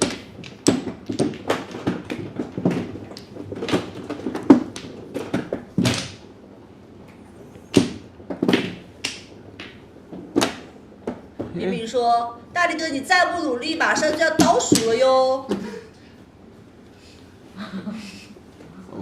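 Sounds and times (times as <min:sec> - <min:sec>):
mahjong tiles clacking: 0:00.0 - 0:06.2, 0:13.8 - 0:15.2.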